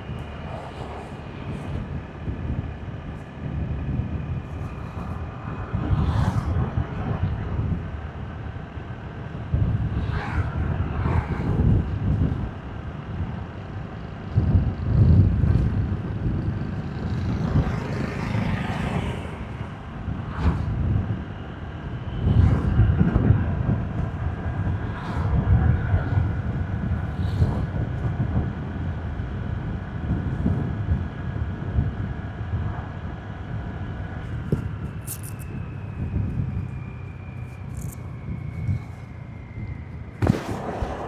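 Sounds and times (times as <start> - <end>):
wind buffeting microphone: 0.0 - 41.0
traffic passing: 16.2 - 25.5, 32.7 - 38.7
motorbike engine and road noise: 33.6 - 39.0.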